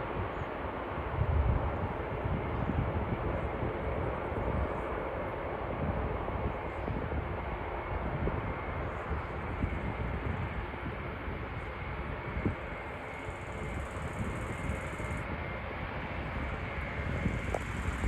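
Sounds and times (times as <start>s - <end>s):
jet engines running: 0.0s - 18.0s.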